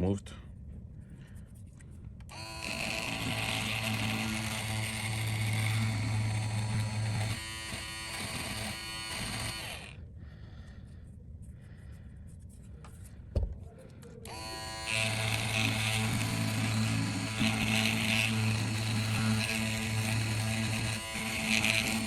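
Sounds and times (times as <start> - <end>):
handheld electric tool humming: 2.3 - 10.0, 14.2 - 22.0.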